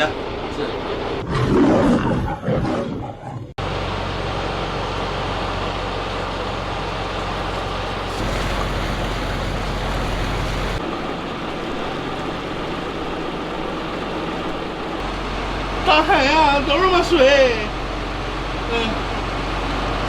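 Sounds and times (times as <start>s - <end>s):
boat engine humming: 3.6s - 20.0s
wind and water rushing: 7.3s - 11.7s.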